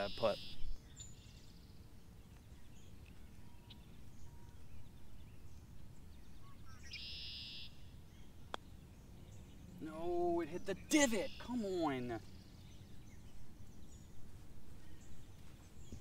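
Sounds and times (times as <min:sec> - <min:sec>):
bird high trill: 0:10.8 - 0:12.1.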